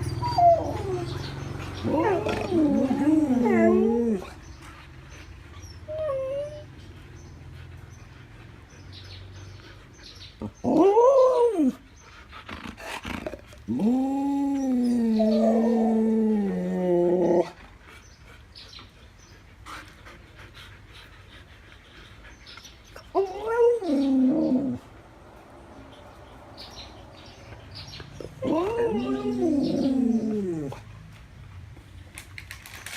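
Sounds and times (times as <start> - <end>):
dog howling: 0.0 - 4.4, 23.2 - 24.8, 28.3 - 30.8.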